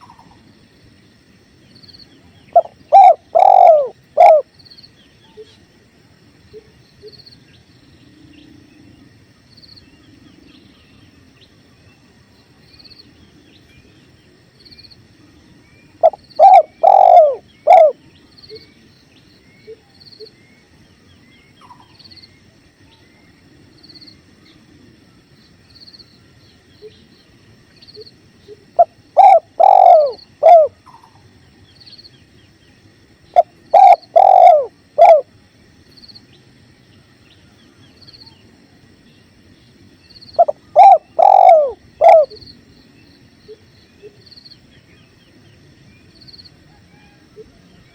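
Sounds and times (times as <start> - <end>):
dove cooing: 2.5 - 4.5, 16.0 - 18.0, 28.8 - 31.2, 33.4 - 35.3, 40.4 - 42.4
small bird chirping: 15.6 - 20.5, 25.9 - 35.2, 40.0 - 47.2.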